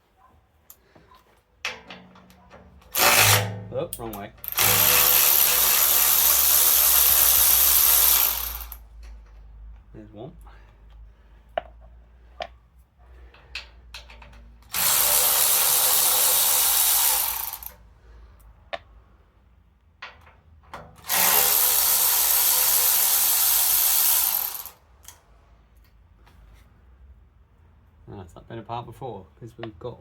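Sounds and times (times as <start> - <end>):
metal parts clicking and knocking: 1.6 - 9.8, 13.3 - 15.8
power driver spinning: 2.9 - 3.6, 4.4 - 8.8.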